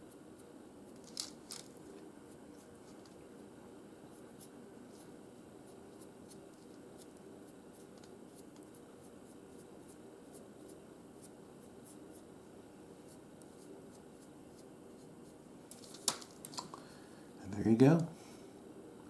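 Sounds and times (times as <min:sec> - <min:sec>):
low room hum: 0:00.0 - 0:19.0
paintbrush scratching: 0:04.1 - 0:12.3, 0:13.0 - 0:15.4.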